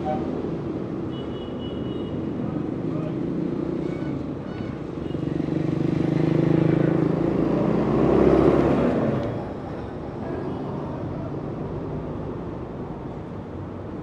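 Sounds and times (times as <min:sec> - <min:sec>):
traffic noise: 0:00.0 - 0:14.0
motor vehicle passing: 0:05.5 - 0:09.2.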